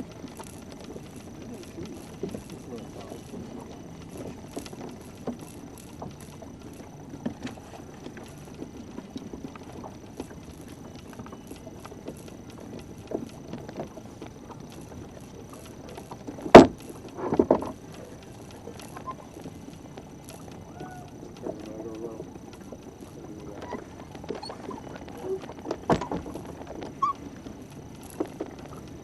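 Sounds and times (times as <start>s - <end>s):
small knocks on boat: 0.0s - 29.0s
water washing against hull: 0.0s - 29.0s.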